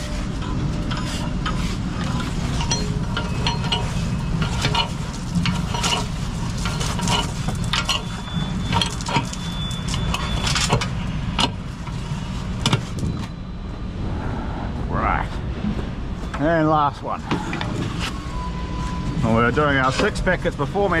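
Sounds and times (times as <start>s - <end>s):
truck engine running: 0.0s - 14.1s
chains rattling and clinking: 0.4s - 10.8s.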